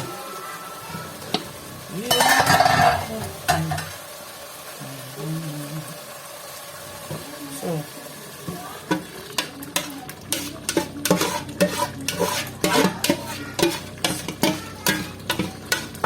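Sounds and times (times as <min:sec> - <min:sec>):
frying oil sizzling: 0:00.0 - 0:16.0
spoon knocking and scraping pot: 0:02.1 - 0:04.0, 0:08.9 - 0:16.0.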